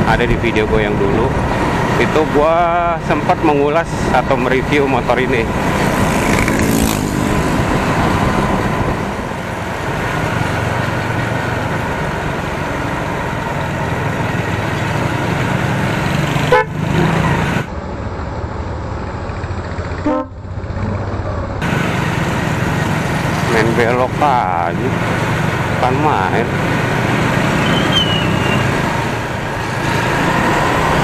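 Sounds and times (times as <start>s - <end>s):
motorcycle engine and road noise: 0.0s - 31.0s
vehicle horn toots: 16.5s - 16.8s, 20.0s - 20.4s.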